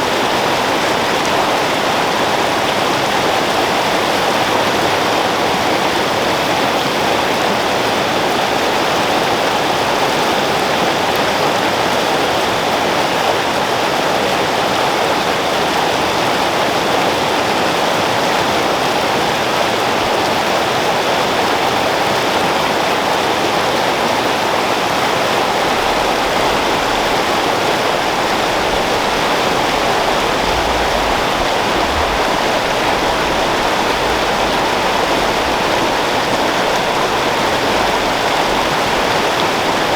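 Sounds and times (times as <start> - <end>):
creek water flowing: 0.0 - 39.9
low rumble: 25.7 - 39.9.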